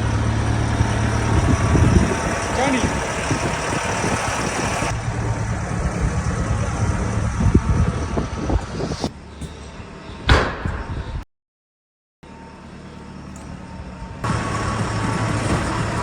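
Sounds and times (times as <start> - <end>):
low mechanical rumble: 0.0 - 11.2, 12.2 - 16.0
sharp knock: 10.3 - 11.1.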